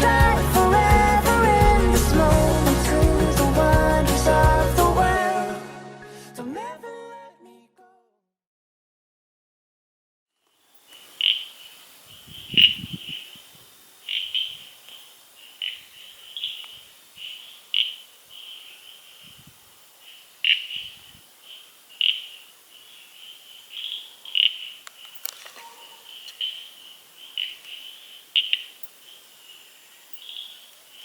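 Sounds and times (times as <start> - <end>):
animals trilling and chirping: 10.9 - 31.0.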